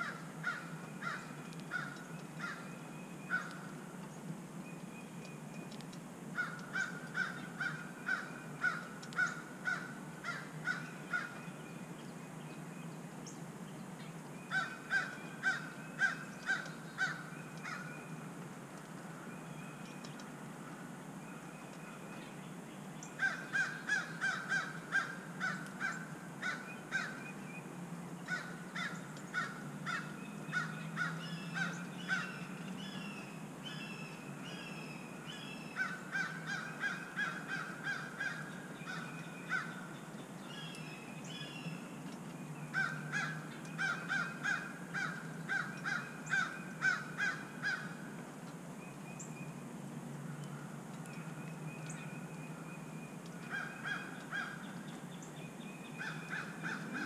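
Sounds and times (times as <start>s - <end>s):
harsh bird calls: 0.0s - 3.8s, 14.4s - 18.2s, 23.0s - 27.4s, 28.2s - 41.9s, 51.2s - 57.0s.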